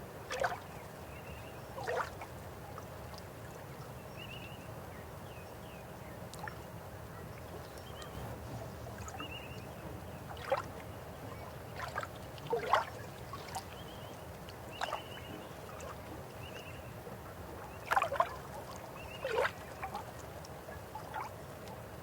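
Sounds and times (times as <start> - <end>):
river water running: 0.0 - 22.0
water gurgles and splashes: 0.3 - 0.6, 1.8 - 2.3, 10.3 - 16.2, 17.6 - 20.3.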